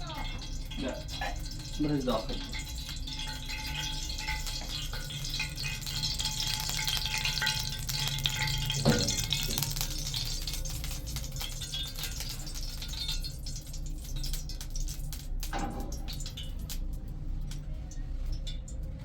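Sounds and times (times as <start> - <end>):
food sizzling in hot oil: 0.0 - 17.0
stirring in a frying pan: 0.0 - 17.4.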